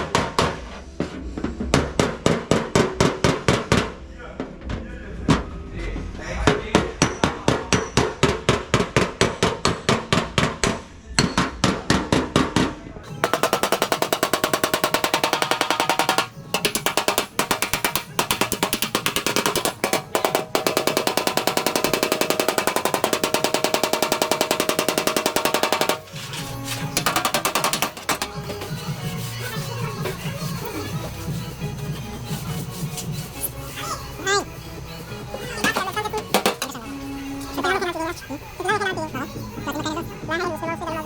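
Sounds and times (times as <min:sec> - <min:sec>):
hammer striking sheet metal: 0:11.2 - 0:28.8, 0:35.6 - 0:36.8.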